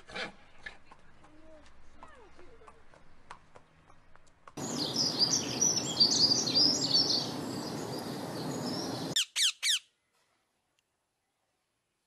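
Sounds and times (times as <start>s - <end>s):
steady outdoor hiss: 0.0s - 12.0s
birds chirping and twittering: 4.6s - 9.8s.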